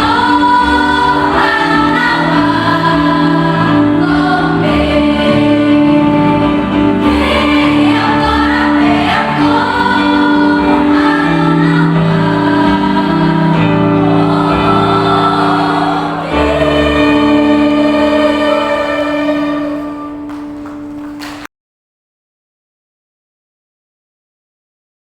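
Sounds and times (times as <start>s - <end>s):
choir singing in harmony: 0.0s - 21.3s.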